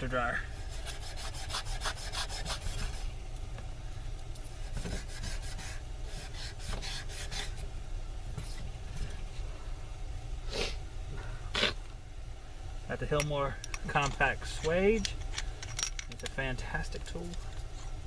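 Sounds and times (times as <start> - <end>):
steady low hum: 0.0 - 18.0
hand rubbing strokes: 0.6 - 3.2.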